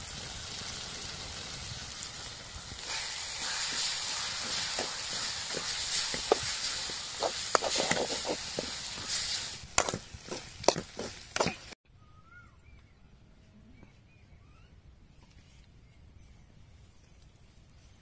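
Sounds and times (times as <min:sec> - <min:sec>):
food sizzling in a metal pot: 0:00.0 - 0:11.8
ladle scraping and knocking pot: 0:02.8 - 0:11.8.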